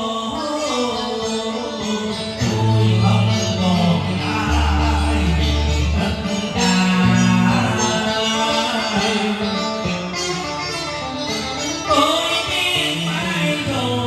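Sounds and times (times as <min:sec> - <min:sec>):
person singing: 0:00.0 - 0:10.7, 0:11.8 - 0:14.0
plucked-string accompaniment: 0:00.0 - 0:14.0
bass line: 0:02.4 - 0:08.3.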